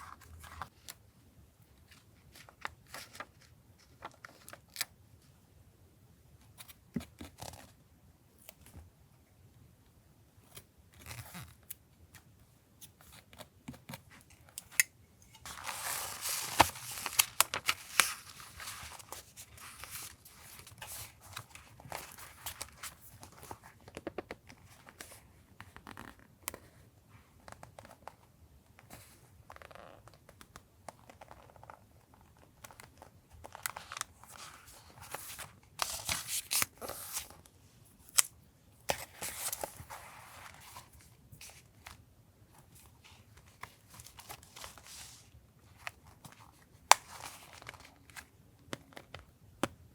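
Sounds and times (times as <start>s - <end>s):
paper tearing and crinkling: 15.4s - 21.2s.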